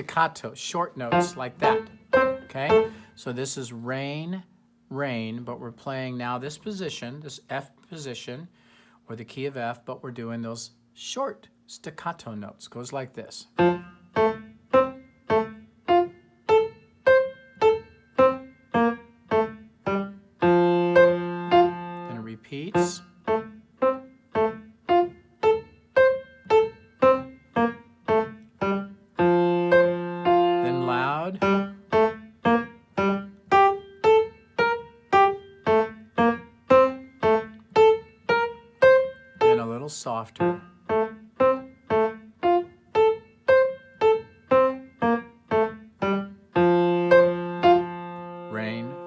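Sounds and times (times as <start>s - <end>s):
piano staccato melody: 1.1s - 3.0s, 13.6s - 22.1s, 22.8s - 39.6s, 40.4s - 49.0s.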